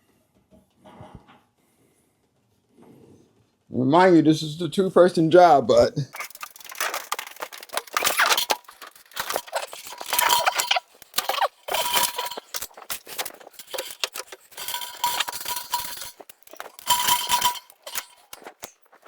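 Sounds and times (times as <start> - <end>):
metal clinking and rattling: 6.2 - 19.0.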